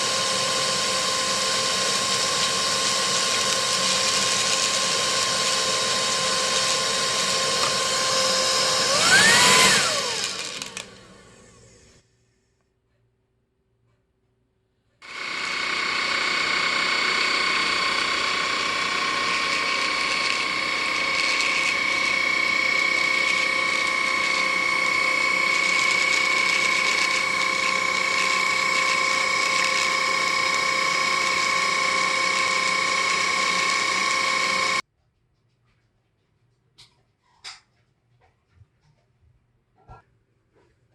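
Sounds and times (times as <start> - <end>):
stick vacuum running: 0.0 - 12.0, 15.0 - 34.8.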